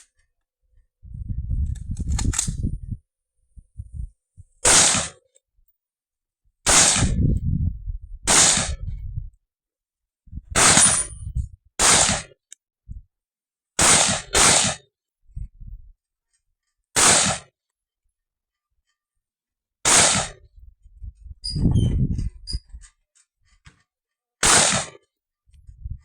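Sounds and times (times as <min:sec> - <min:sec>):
low rumble of handling: 0:01.1 - 0:03.0, 0:20.5 - 0:23.0, 0:25.5 - 0:26.0
rifle shots: 0:04.6 - 0:05.2, 0:06.7 - 0:07.2, 0:08.3 - 0:08.8, 0:10.6 - 0:11.1, 0:11.8 - 0:12.3, 0:13.8 - 0:14.8, 0:17.0 - 0:17.5, 0:19.9 - 0:20.4, 0:24.4 - 0:25.0.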